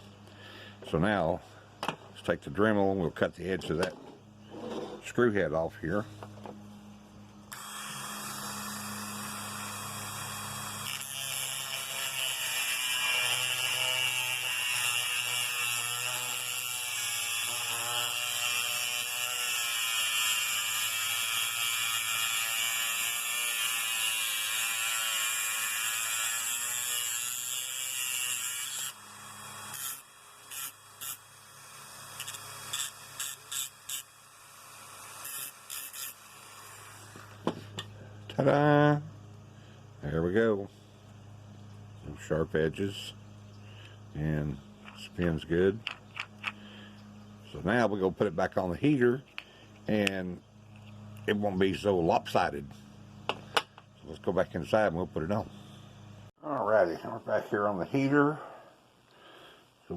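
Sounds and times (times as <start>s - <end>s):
rotary tool cutting metal: 7.5s - 37.4s.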